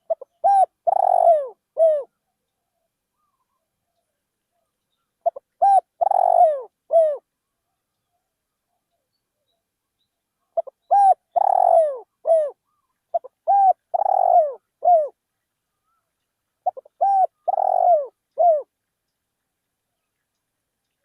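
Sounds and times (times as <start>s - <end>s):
dove cooing: 0.0s - 2.2s, 5.2s - 7.2s, 10.6s - 15.2s, 16.6s - 18.7s.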